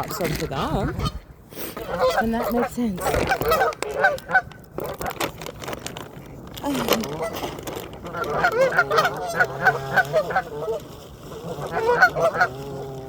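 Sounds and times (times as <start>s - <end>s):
waterfowl harsh calls: 1.8s - 5.2s, 8.0s - 13.0s.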